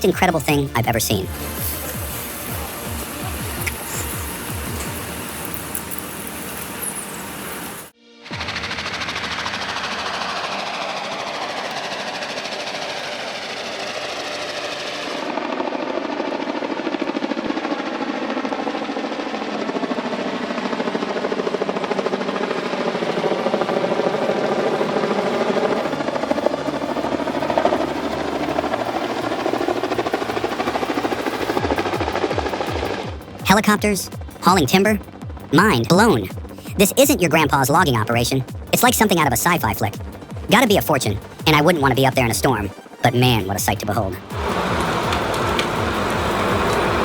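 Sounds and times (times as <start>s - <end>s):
helicopter rotor beating: 0.0s - 47.0s.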